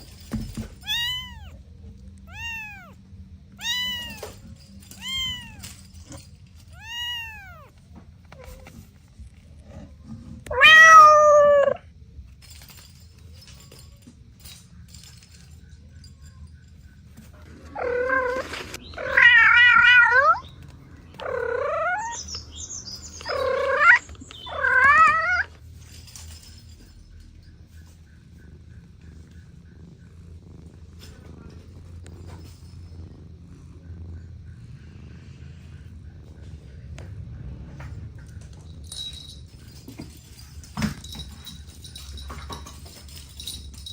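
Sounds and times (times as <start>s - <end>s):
cat meowing: 0.8s - 1.6s, 2.2s - 5.8s, 6.7s - 7.8s, 10.5s - 11.8s, 17.7s - 20.5s, 21.2s - 22.2s, 23.2s - 25.5s.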